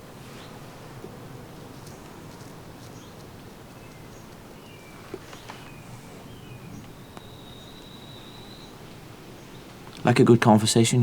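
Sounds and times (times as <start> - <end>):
low background noise: 0.0 - 11.0
faint bird chirps: 1.8 - 10.0.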